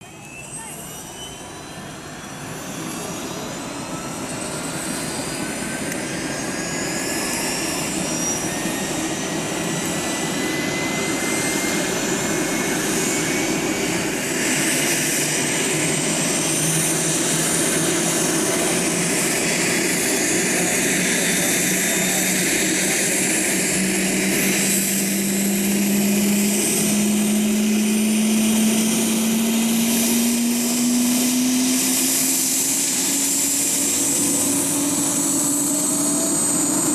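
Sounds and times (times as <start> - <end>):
helicopter turbine and rotor noise: 0.0 - 36.9
high whines rising in pitch: 0.1 - 36.9
low hum climbing in pitch: 20.4 - 36.9.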